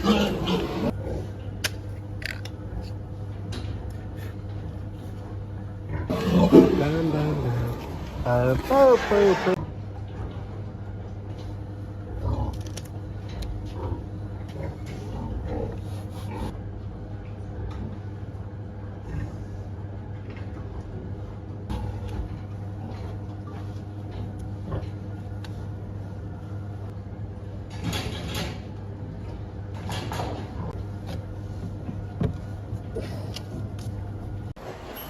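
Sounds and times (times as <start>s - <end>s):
low mechanical hum: 0.0s - 35.0s
loud bursts of noise: 6.1s - 9.6s.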